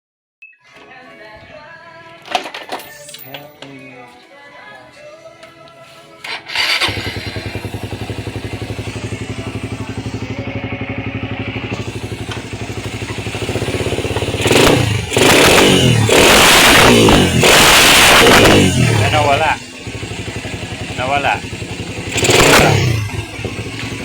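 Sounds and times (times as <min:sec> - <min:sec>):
motorcycle engine starting and idling: 0:06.2 - 0:24.0
motorcycle engine revving: 0:06.4 - 0:24.0.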